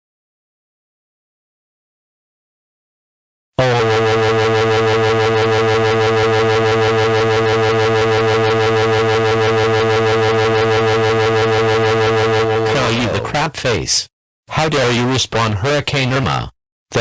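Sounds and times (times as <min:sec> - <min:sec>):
low synthetic buzzing tone: 0:03.6 - 0:13.3.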